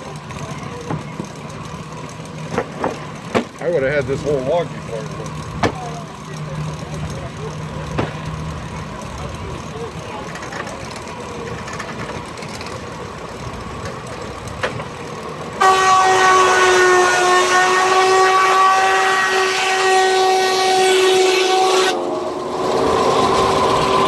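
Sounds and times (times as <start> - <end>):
machinery running: 0.0 - 24.0
steam hissing: 10.8 - 24.0
steam whistle blast: 15.6 - 24.0.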